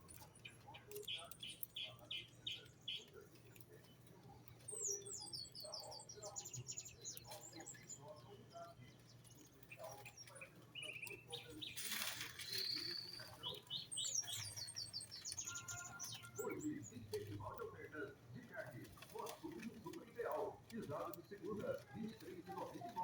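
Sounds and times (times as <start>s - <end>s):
small songbirds chirping: 0.0s - 23.0s
bird trill: 9.7s - 17.0s.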